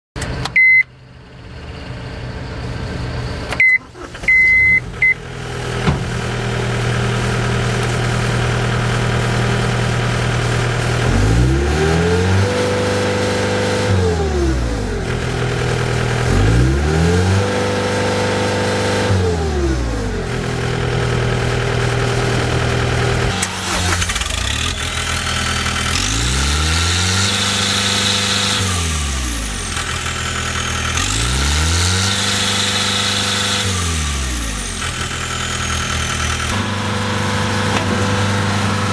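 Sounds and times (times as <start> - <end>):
diesel engine idling and revving: 0.2 - 38.9
short electronic beeps: 0.6 - 0.9, 3.6 - 5.2.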